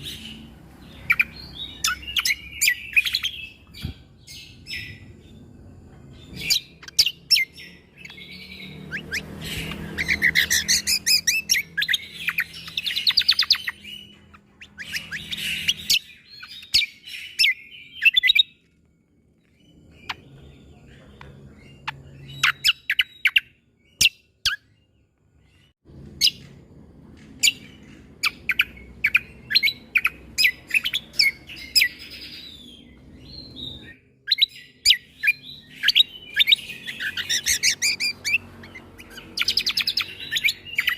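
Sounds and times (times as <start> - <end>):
bird song with sharp notes and trills: 0.0 - 40.9.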